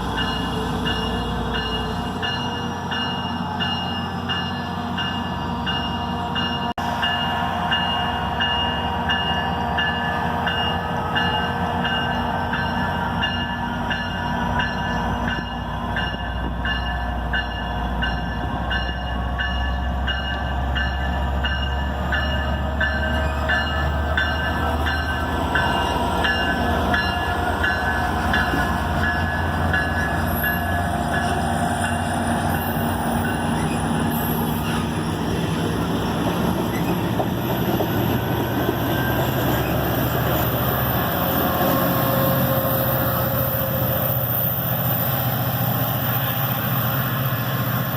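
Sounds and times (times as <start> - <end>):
train rumble: 0.0 - 47.9.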